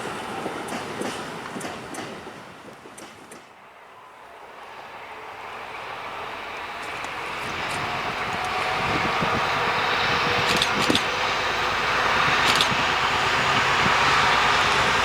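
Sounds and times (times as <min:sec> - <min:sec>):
diesel locomotive running: 0:00.0 - 0:15.0
metallic clicks from wheels: 0:10.4 - 0:11.1, 0:12.4 - 0:12.8.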